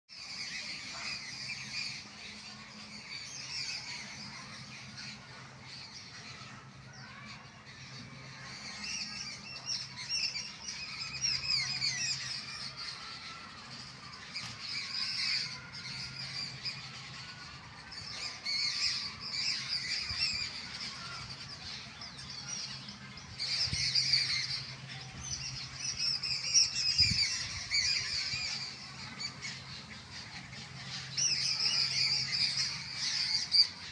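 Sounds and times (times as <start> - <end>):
birds chirping and squawking: 0.1 - 33.9.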